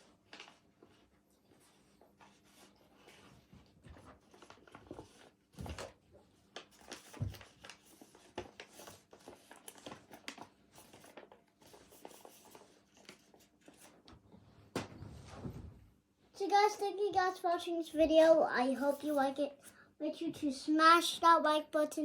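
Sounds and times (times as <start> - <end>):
paper rustling and tapping: 0.2 - 1.0, 3.7 - 15.0.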